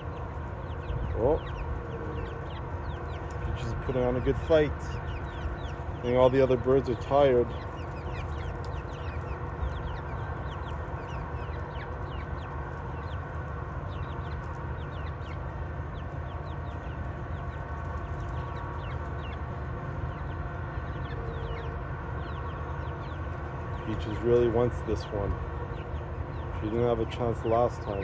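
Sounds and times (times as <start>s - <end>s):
high falling hen calls: 0.0s - 5.3s
hens clucking: 0.0s - 28.0s.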